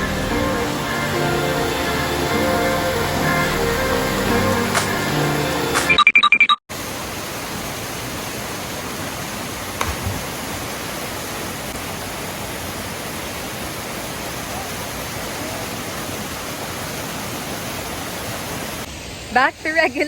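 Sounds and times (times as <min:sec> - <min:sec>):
waterfall and river rushing: 0:00.0 - 0:06.0, 0:06.7 - 0:19.2
short electronic beeps: 0:05.8 - 0:06.6.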